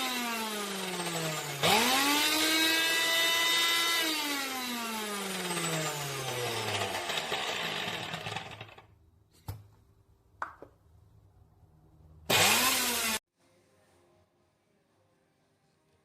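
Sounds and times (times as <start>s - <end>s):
mixer grinder motor: 0.0s - 8.9s, 12.3s - 13.2s.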